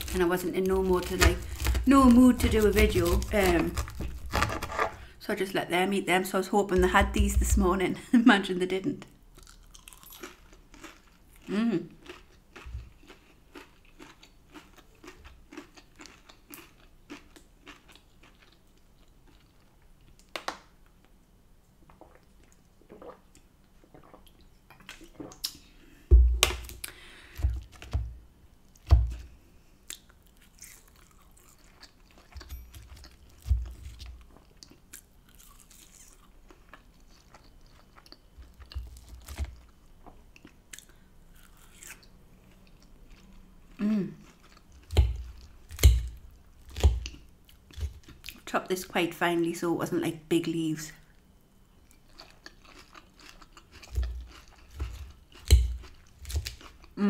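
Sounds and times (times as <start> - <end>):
chewing and crunching food: 0.0 - 5.0, 9.3 - 20.4, 29.0 - 48.5, 51.1 - 57.0
dull thumps: 26.1 - 26.6.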